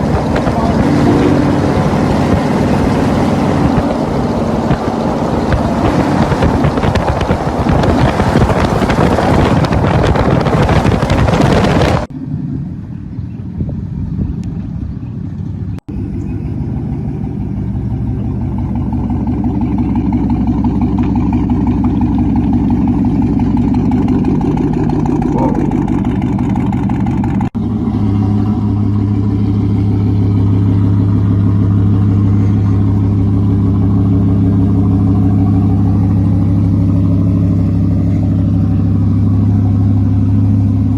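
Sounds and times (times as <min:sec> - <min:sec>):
rushing wind: 0:00.0 - 0:15.4
road noise: 0:00.0 - 0:40.9
truck exhaust droning: 0:00.0 - 0:40.9.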